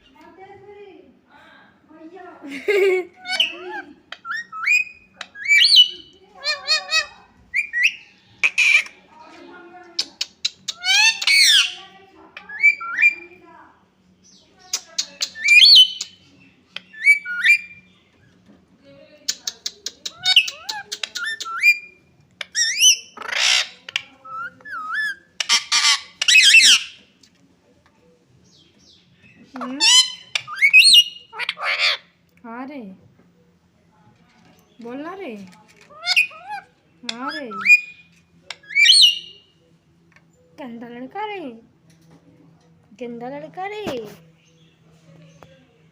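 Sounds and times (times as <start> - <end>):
parakeets squawking: 3.1 - 9.1, 9.8 - 13.5, 14.5 - 17.9, 19.3 - 27.1, 29.2 - 32.2, 35.8 - 39.5.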